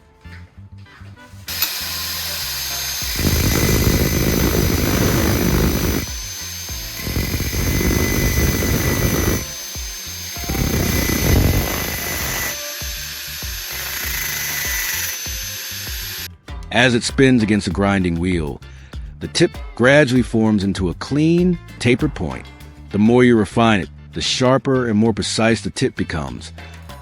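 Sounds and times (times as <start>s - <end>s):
metal grinding on grinding wheel: 1.5s - 16.3s
power tool motor whining: 1.5s - 16.3s.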